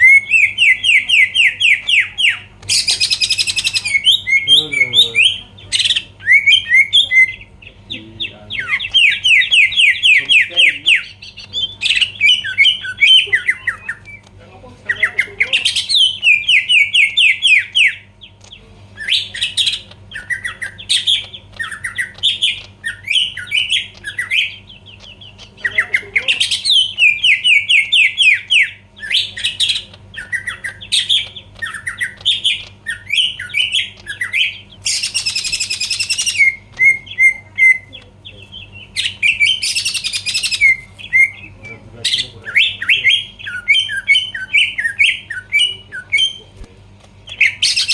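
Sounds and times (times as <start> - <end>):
bird singing sweeping notes: 0.0 - 14.2
faint steady hum: 0.0 - 47.9.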